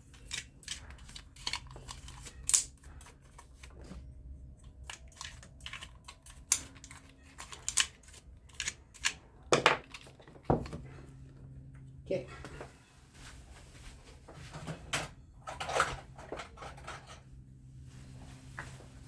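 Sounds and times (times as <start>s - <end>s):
small metal parts clicking: 0.0s - 3.8s, 4.6s - 10.4s.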